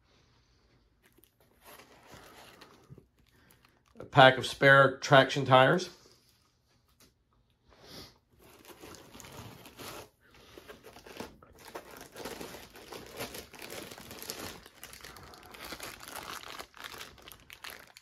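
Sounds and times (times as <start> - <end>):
packaging crinkling and rustling: 1.0 - 4.0, 8.4 - 18.0
packaging tearing: 8.4 - 18.0.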